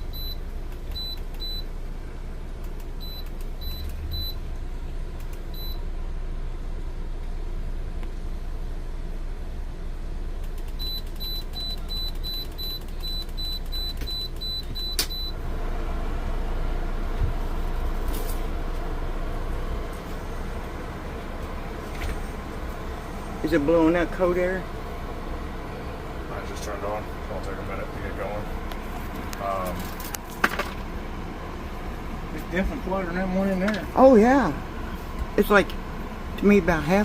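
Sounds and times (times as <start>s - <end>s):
control beeps: 0.0s - 1.7s, 3.0s - 4.4s, 10.8s - 15.4s
air conditioner humming: 0.0s - 37.0s
air conditioner click: 0.1s - 1.7s, 2.6s - 4.3s, 5.2s - 5.8s, 10.4s - 15.3s.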